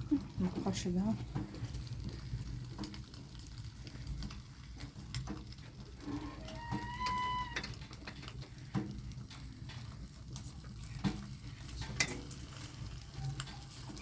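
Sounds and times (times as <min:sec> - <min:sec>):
food frying in a pan: 0:00.0 - 0:14.0.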